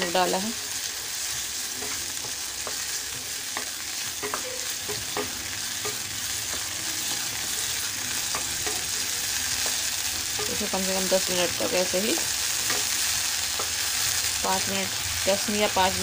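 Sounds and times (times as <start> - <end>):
chicken sizzling in oil: 0.0 - 16.0
spatula scraping and tapping pan: 1.4 - 10.8, 12.1 - 14.0.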